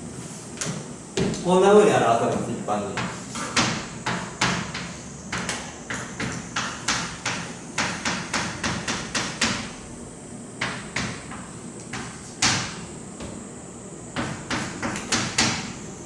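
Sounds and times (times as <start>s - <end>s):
chalk tapping on blackboard: 3.0s - 9.7s, 10.6s - 13.3s, 14.2s - 15.8s.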